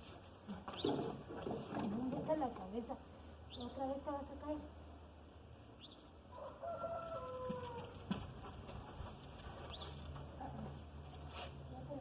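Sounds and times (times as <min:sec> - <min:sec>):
rooster crowing: 0:06.3 - 0:08.0.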